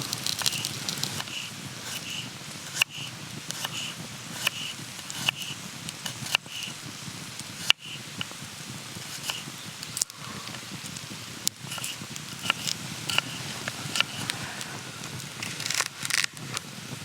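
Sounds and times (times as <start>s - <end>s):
campfire crackling and popping: 0.0s - 17.0s
low steady hiss: 0.0s - 17.0s.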